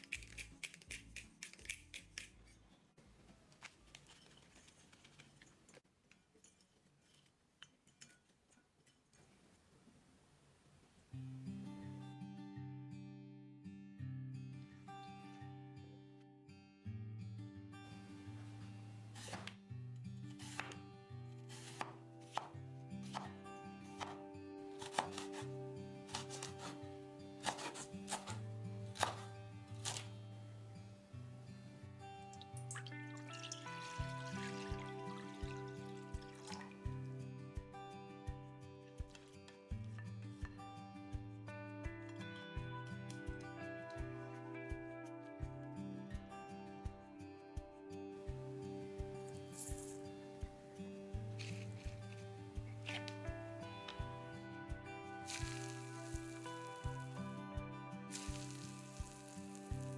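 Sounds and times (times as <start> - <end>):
faint music: 17.8 - 59.9
knife cutting on chopping board: 19.2 - 19.6, 20.4 - 20.8, 21.5 - 23.4, 24.0 - 26.8, 27.4 - 30.1, 51.3 - 53.2.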